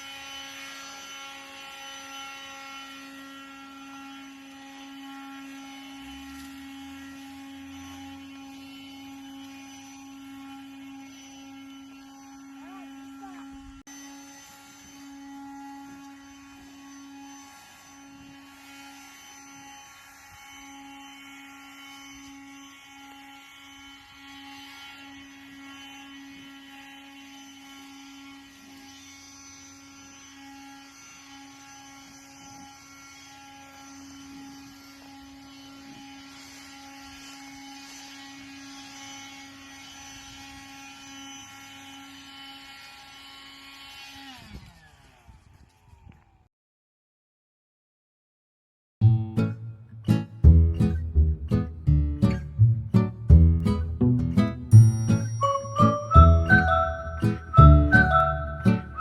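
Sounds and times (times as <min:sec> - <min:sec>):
leaf blower running: 0:00.0 - 0:45.9.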